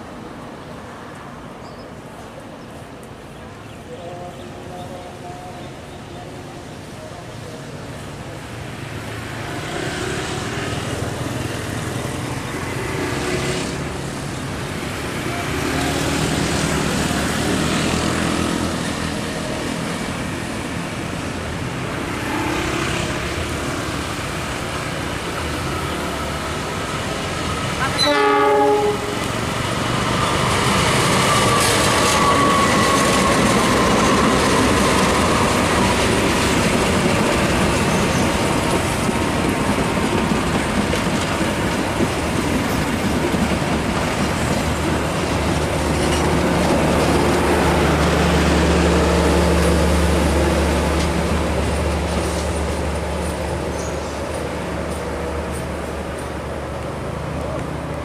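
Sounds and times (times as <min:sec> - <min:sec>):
train horn blast: 0:27.8 - 0:29.4
coach wheels clattering and hissing: 0:29.0 - 0:58.0.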